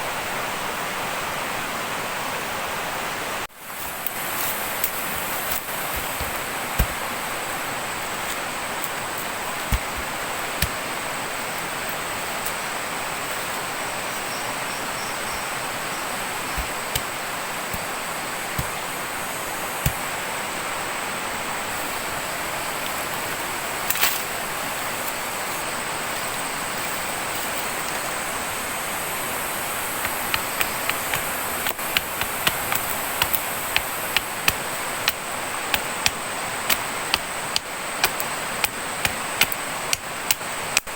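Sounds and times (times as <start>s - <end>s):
flowing water: 0.0s - 40.9s
sharp taps: 4.8s - 7.2s, 8.3s - 10.8s.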